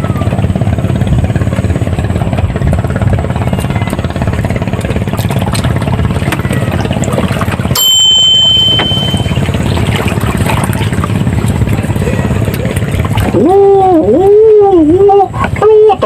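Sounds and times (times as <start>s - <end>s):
small engine running: 0.0s - 16.0s
high steady tone: 7.6s - 12.5s.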